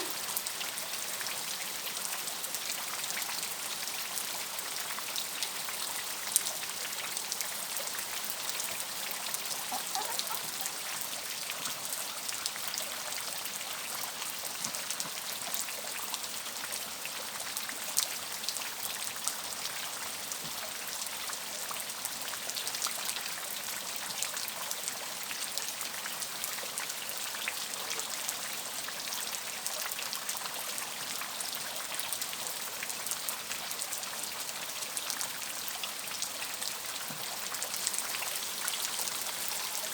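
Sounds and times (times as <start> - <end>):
steady rain hiss: 0.0 - 18.7, 30.8 - 39.9.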